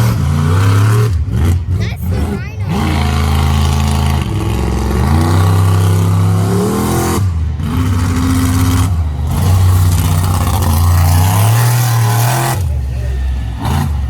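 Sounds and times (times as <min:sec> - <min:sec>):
truck engine revving hard: 0:00.0 - 0:14.0.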